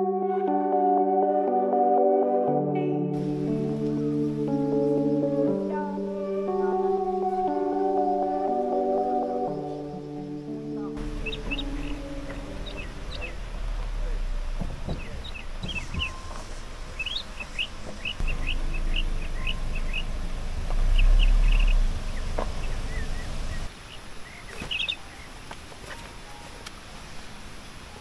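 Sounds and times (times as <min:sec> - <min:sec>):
small birds chirping: 0:09.2 - 0:26.6
low rumble: 0:11.0 - 0:23.7
knocks: 0:14.5 - 0:16.4.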